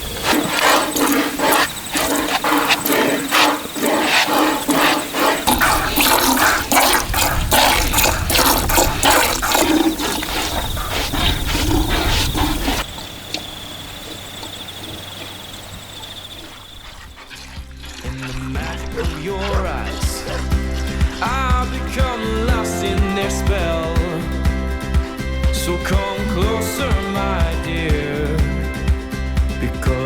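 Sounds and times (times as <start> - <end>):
steady high chirping: 0.0 - 23.2
water splashing and bubbling: 0.0 - 23.6.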